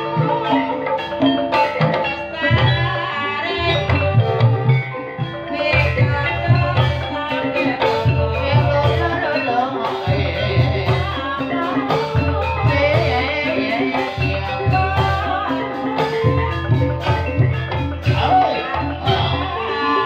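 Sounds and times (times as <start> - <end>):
band playing with steady low beat: 0.0 - 20.0
person singing with wavering voice: 0.0 - 20.0.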